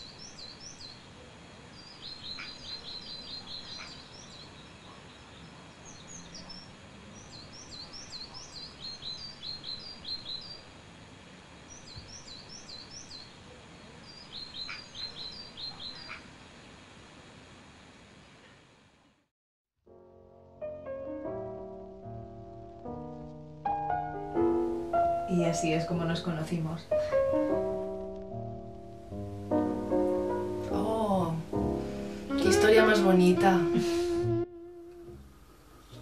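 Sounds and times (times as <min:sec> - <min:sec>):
birds singing: 0:00.0 - 0:10.7, 0:11.7 - 0:16.2
outdoor background hiss: 0:00.0 - 0:19.3, 0:19.9 - 0:36.0.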